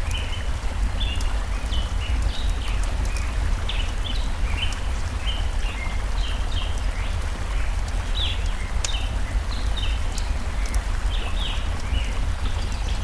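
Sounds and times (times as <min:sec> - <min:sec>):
fire crackling: 0:00.0 - 0:13.0
stream running: 0:00.0 - 0:13.0
birds chirping: 0:01.0 - 0:13.0.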